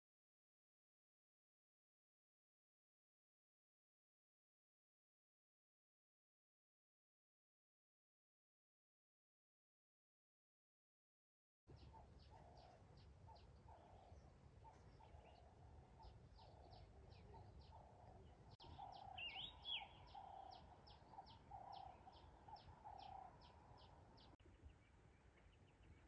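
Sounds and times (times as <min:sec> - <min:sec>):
lower bird calls: 0:11.7 - 0:26.0
bird twittering: 0:11.8 - 0:26.0.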